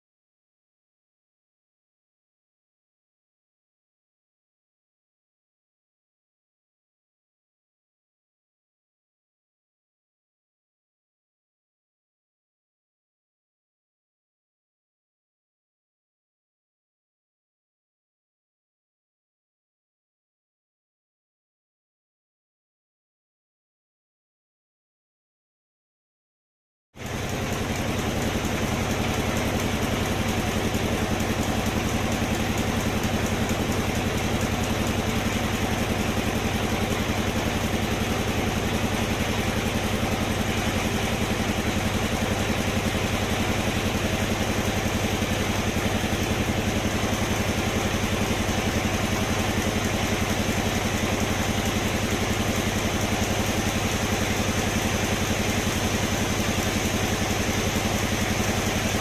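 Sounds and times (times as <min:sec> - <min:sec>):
sawmill machinery droning: 0:27.0 - 0:59.0.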